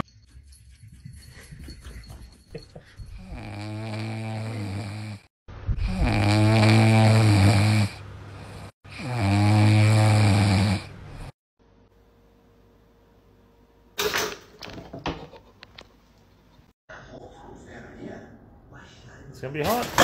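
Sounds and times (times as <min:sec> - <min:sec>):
puppy snoring: 0:03.2 - 0:11.4.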